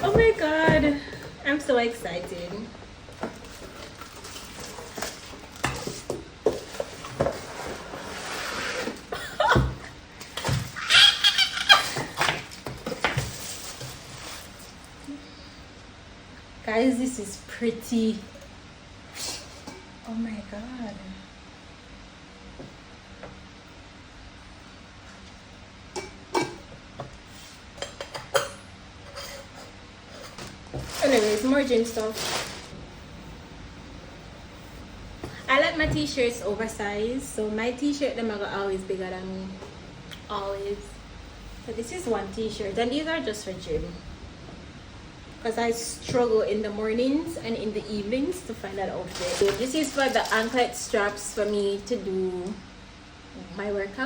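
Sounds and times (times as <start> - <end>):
packaging rustling and tearing: 30.4 - 32.7, 49.0 - 50.8.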